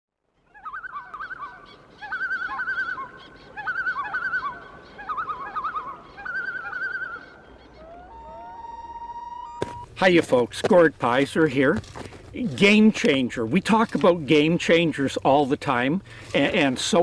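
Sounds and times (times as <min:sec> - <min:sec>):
birds warbling calls: 0:00.4 - 0:08.9.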